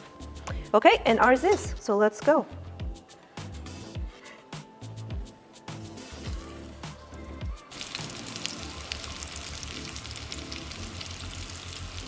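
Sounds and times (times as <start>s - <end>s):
food sizzling in oil: 7.6s - 12.0s.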